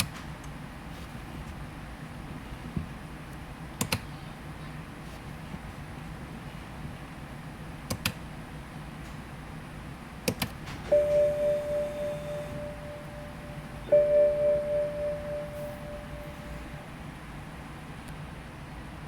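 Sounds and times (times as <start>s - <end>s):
electronic gong-like chime: 10.9s - 16.9s.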